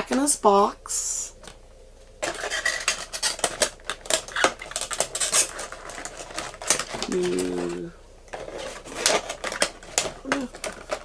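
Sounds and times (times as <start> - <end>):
plastic and cardboard rustling: 2.2 - 11.0.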